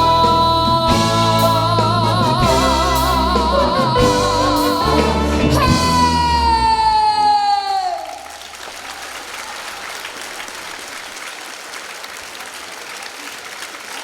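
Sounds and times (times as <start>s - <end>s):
brass band chords: 0.0s - 7.3s
woman singing: 0.0s - 8.2s.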